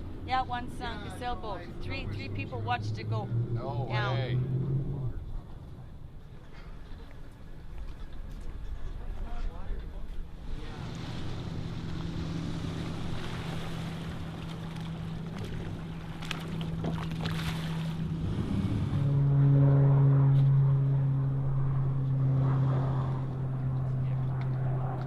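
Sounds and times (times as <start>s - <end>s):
motorboat engine running: 0.0s - 25.0s
water noise: 0.0s - 25.0s
wind: 0.0s - 25.0s.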